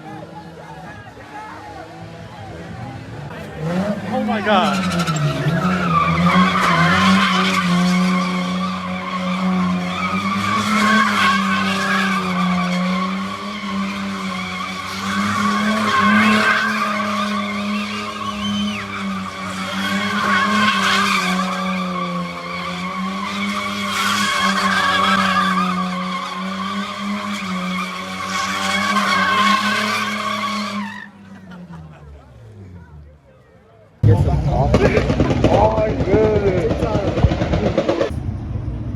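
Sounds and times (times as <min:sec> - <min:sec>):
car engine at high revs: 0:00.0 - 0:33.2, 0:34.0 - 0:38.9
tyres squealing: 0:04.2 - 0:31.4.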